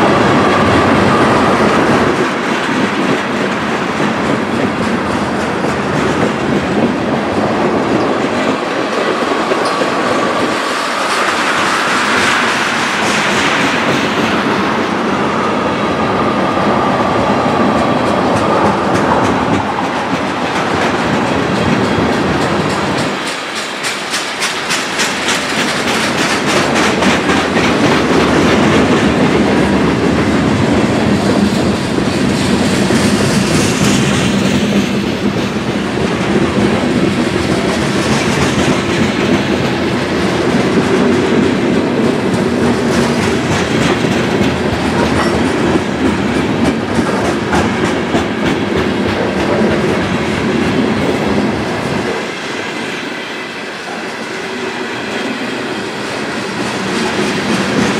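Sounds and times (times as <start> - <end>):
wheels clickety-clack over rail joints: 0.0 - 53.1, 53.8 - 57.9
freight cars rolling on rails: 0.0 - 57.9.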